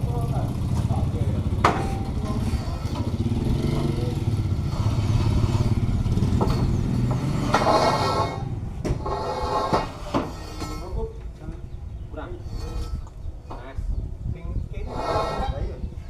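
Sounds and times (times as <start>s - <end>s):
small engine idling: 0.0s - 8.8s
sharp knocks: 1.6s - 3.1s, 4.4s - 10.8s.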